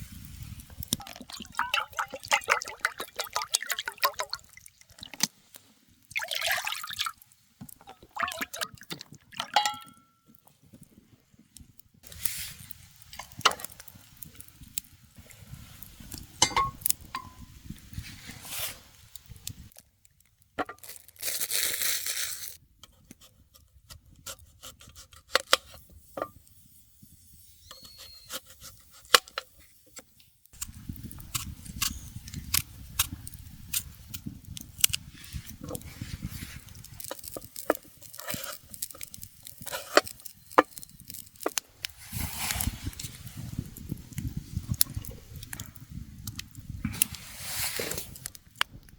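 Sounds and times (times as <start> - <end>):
camp gear clinking and knocking: 9.4 - 10.3, 16.4 - 17.6.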